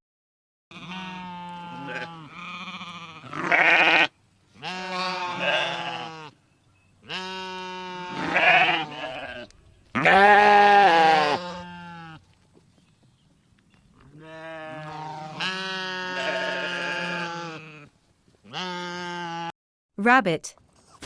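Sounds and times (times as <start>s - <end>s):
sheep bleating: 0.7s - 6.4s, 7.0s - 12.2s, 14.2s - 19.5s.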